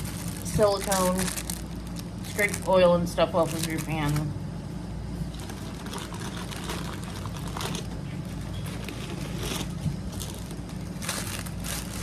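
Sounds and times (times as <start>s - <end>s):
plastic packaging crinkling: 0.0s - 4.4s, 5.2s - 12.0s
low background hum: 0.0s - 12.0s.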